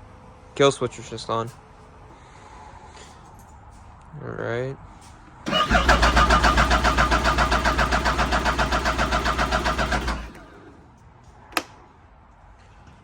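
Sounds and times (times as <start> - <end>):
electric starter cranking engine: 5.4 - 10.8.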